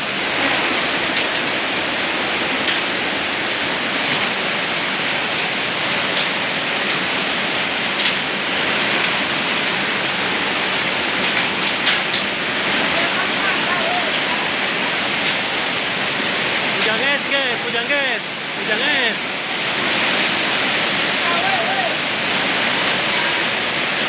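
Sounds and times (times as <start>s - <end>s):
hail and pouring rain: 0.0s - 24.0s
sharp hail ticks: 2.6s - 7.3s, 7.9s - 8.3s, 10.7s - 15.5s.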